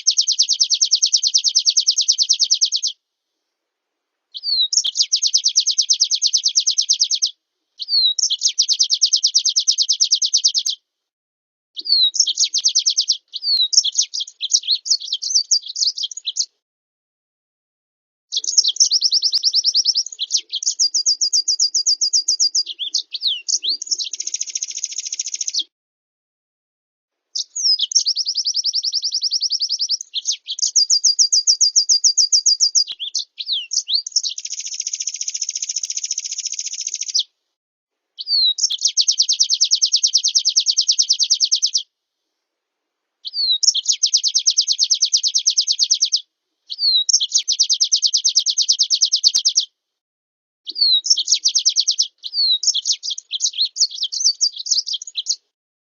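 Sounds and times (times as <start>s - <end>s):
recorded songbird trills: 0.0s - 3.0s, 4.3s - 10.8s, 11.8s - 16.6s, 18.3s - 25.7s, 27.3s - 37.4s, 38.2s - 41.9s, 43.2s - 49.8s, 50.7s - 55.5s.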